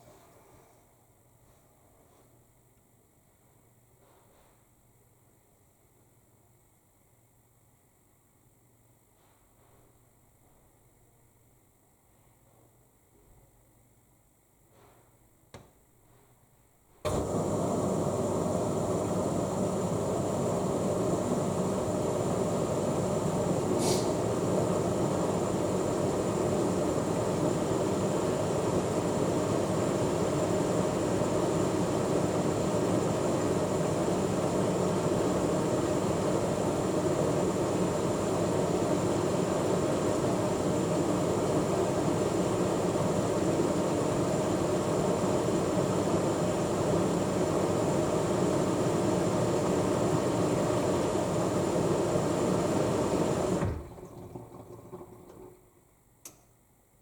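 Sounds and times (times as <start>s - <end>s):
washing machine filling with water: 17.1s - 56.0s.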